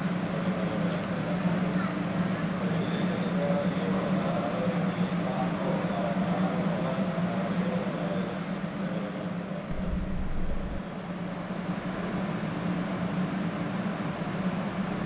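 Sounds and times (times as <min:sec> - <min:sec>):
low rumble: 0:09.7 - 0:10.8
train equipment humming: 0:09.7 - 0:10.8.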